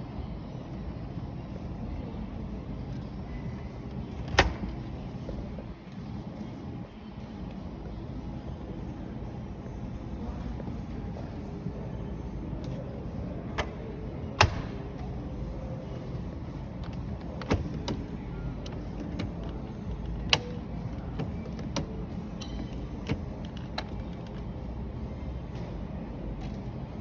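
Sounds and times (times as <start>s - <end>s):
low background rumble: 0.0s - 27.0s
washing machine doors clicking: 4.2s - 4.9s, 13.5s - 15.0s, 16.9s - 19.4s.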